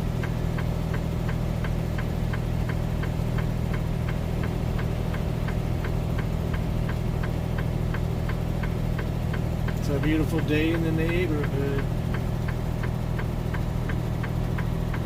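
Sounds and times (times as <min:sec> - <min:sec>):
diesel engine low drone: 0:00.0 - 0:15.0.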